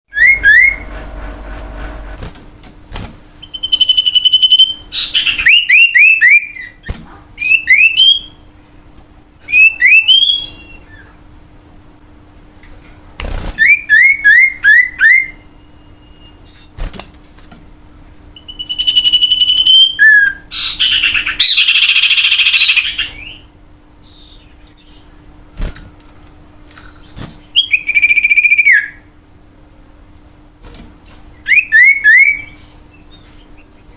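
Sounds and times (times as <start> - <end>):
bird singing whistled phrases: 0.1 - 0.8, 3.4 - 6.8, 7.4 - 8.4, 9.5 - 11.1, 13.6 - 16.7, 18.4 - 23.5, 27.5 - 29.1, 31.4 - 33.9
faint steady hum: 0.1 - 33.9.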